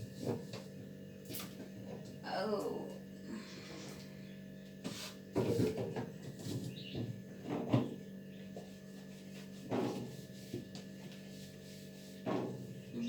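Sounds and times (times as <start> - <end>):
knocks and scrapes in freezer: 0.0 - 2.1, 4.8 - 13.0
fridge humming: 0.0 - 13.0.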